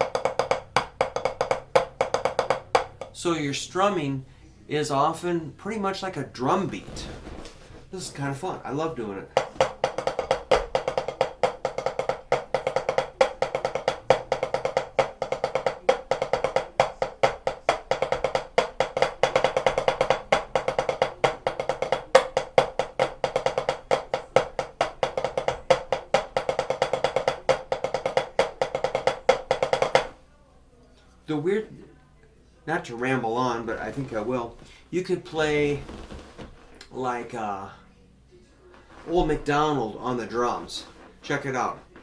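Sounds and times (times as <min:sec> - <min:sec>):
drumsticks on practice pad: 0:00.0 - 0:03.3.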